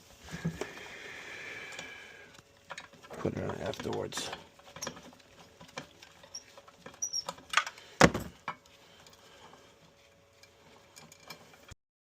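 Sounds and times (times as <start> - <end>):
metal parts clicking and tapping: 2.6 - 7.8.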